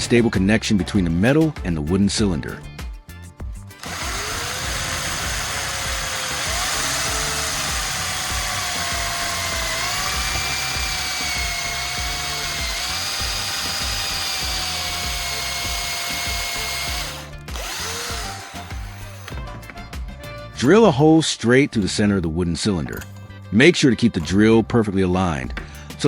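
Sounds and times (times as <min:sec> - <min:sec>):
background music with steady beat: 0:00.0 - 0:26.0
electric drill motor whining: 0:03.8 - 0:19.8.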